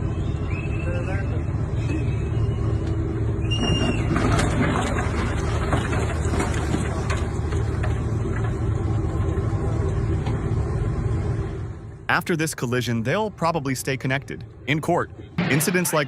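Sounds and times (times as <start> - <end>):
high squeal: 3.4 - 4.2.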